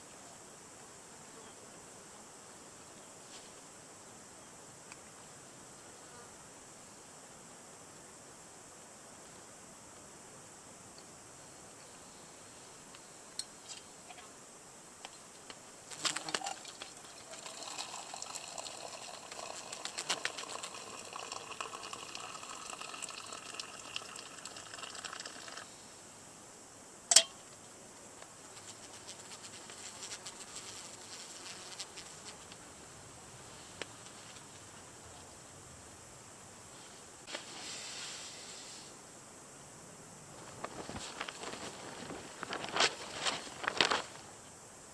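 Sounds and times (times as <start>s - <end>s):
liquid pouring: 16.4s - 25.7s.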